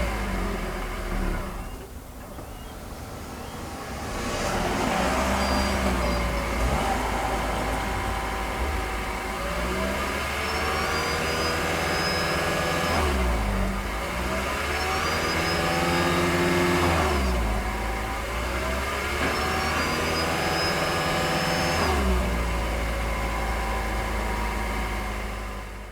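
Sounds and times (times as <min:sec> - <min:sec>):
car engine revving: 0:03.2 - 0:25.4.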